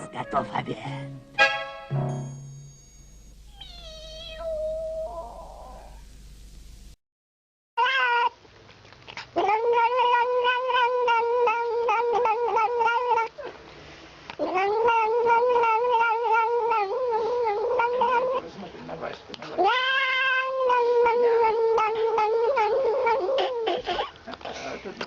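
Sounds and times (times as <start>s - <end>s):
cat yowling: 3.5s - 6.0s, 7.8s - 8.4s, 9.4s - 13.4s, 14.4s - 18.4s, 19.6s - 24.0s.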